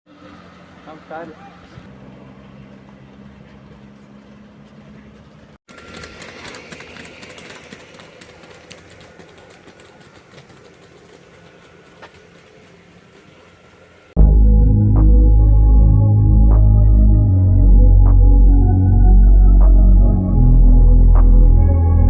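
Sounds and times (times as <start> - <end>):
motorcycle engine running: 0.2 - 13.9.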